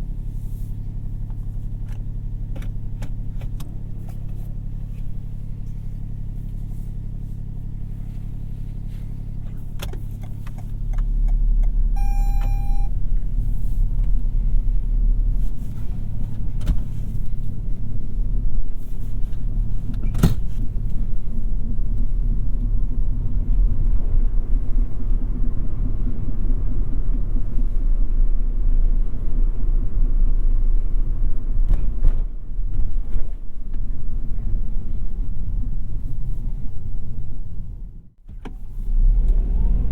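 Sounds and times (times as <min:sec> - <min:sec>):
car engine rumble: 0:00.0 - 0:39.9
short electronic beep: 0:11.9 - 0:12.9.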